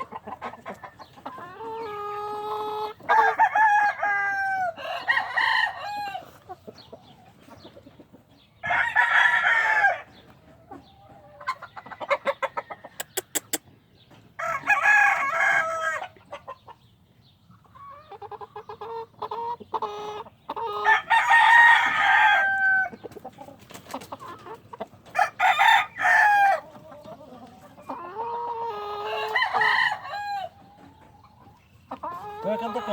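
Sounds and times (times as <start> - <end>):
chickens clucking: 0.0 - 32.9
cockerels crowing: 1.6 - 6.3, 11.7 - 13.6, 20.6 - 23.0, 25.1 - 26.8, 27.9 - 30.6
pecking clicks: 13.0 - 13.6.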